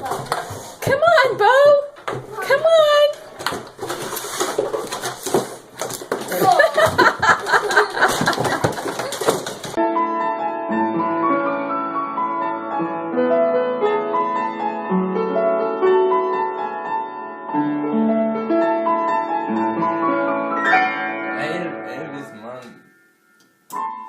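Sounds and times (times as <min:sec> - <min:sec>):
piano music: 0:06.5 - 0:24.0.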